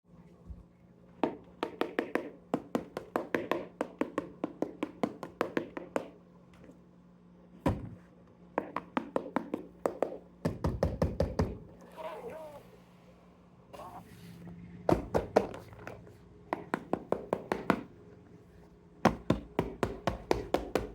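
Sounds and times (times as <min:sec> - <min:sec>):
faint steady hum: 0:00.1 - 0:20.9
rapid sharp taps and knocks: 0:01.2 - 0:06.2, 0:08.5 - 0:11.6, 0:16.5 - 0:17.9, 0:19.0 - 0:20.9.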